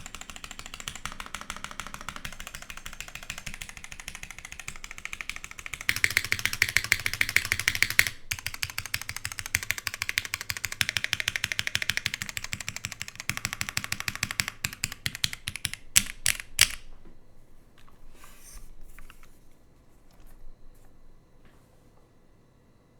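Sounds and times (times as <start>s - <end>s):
fast typing on mechanical keyboard: 0.0s - 16.8s.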